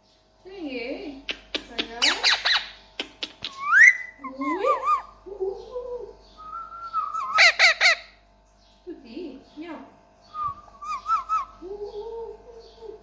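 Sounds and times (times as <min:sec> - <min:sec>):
parakeet whistling and warbling: 0:03.5 - 0:05.1, 0:06.4 - 0:08.1, 0:10.4 - 0:12.0.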